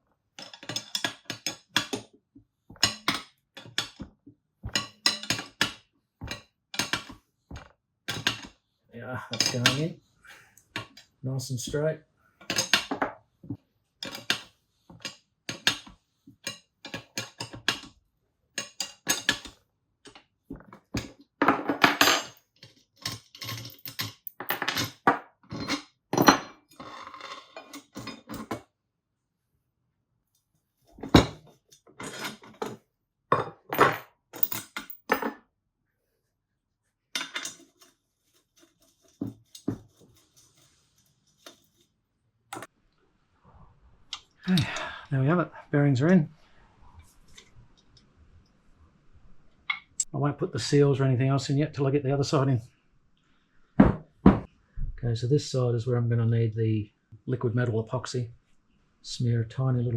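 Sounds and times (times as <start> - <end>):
metal tools clinking: 0.4 - 2.0, 9.3 - 9.9, 21.0 - 28.6, 33.4 - 35.4, 37.2 - 41.9.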